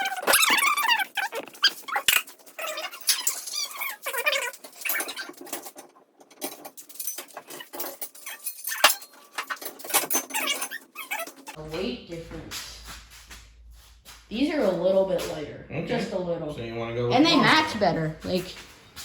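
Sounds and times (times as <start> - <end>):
dog whining: 0.0 - 5.4, 10.0 - 11.6.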